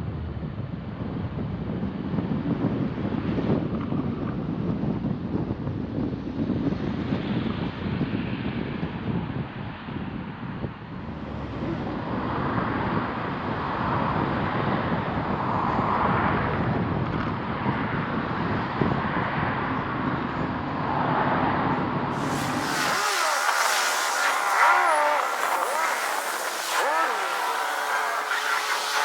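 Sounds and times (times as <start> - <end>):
car tyre and engine noise: 22.2 - 29.0.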